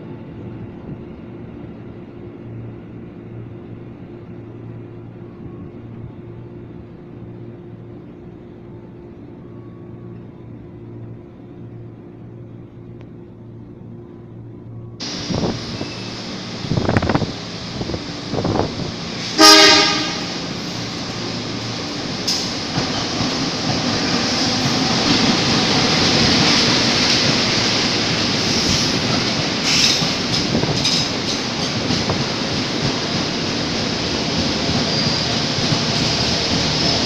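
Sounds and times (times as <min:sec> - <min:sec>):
train wheels on rails: 0:15.0 - 0:37.0
train horn blast: 0:19.2 - 0:20.8.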